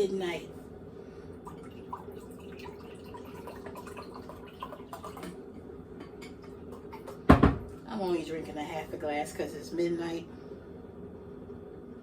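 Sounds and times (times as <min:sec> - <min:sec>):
steady low hum: 0:00.0 - 0:12.0
liquid dripping: 0:01.4 - 0:05.4.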